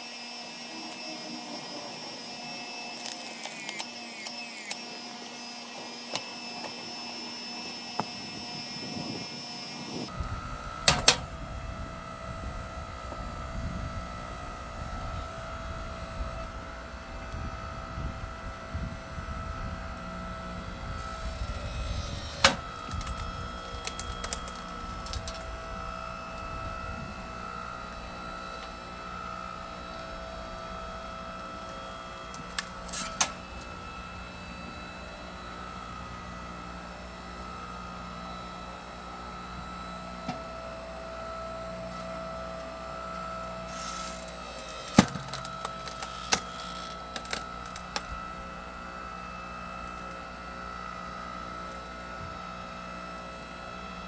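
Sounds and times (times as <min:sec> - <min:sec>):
log splitter engine hum: 0:00.0 - 0:54.0
wood cracking and splintering: 0:21.0 - 0:25.6, 0:43.7 - 0:48.1.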